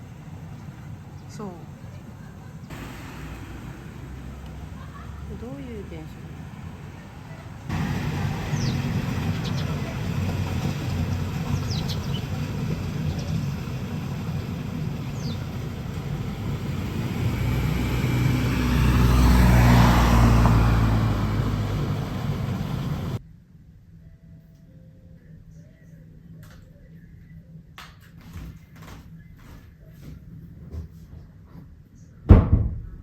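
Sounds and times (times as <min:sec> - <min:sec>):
low rumble of road traffic: 0:00.0 - 0:23.2
vehicle passing: 0:00.0 - 0:23.2.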